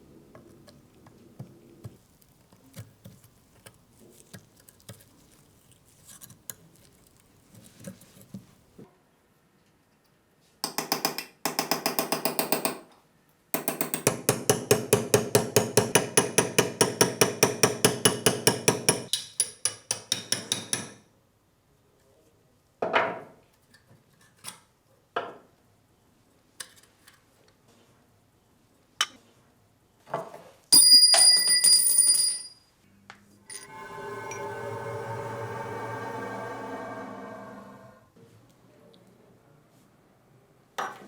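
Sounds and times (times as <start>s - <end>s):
hand tool back-and-forth strokes: 1.4s - 8.7s.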